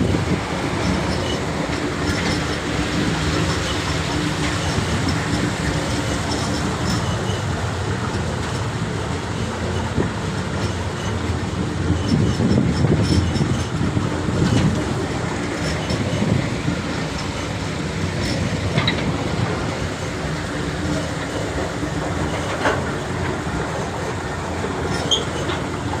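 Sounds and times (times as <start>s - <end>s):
rail clicks: 0.0s - 26.0s
train rumbling on rails: 0.0s - 26.0s.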